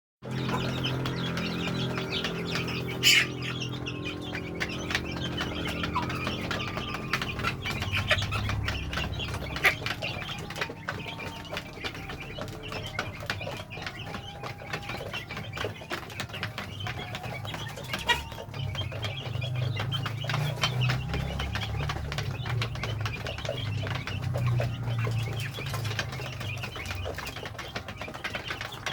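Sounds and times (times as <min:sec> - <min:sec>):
chicks peeping: 0:00.2 - 0:28.9.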